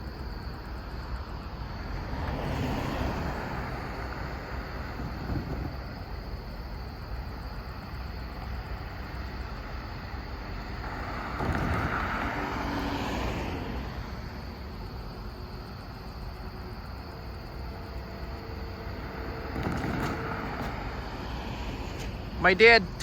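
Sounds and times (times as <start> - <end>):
road vehicle passing by: 0.0 - 23.0
low outdoor rumble: 13.6 - 23.0.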